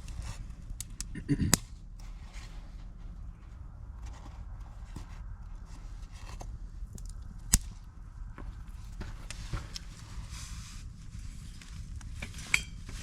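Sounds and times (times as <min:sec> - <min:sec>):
campfire crackling and popping: 0:00.0 - 0:01.8, 0:06.7 - 0:10.0
low fire rumble: 0:00.0 - 0:13.0.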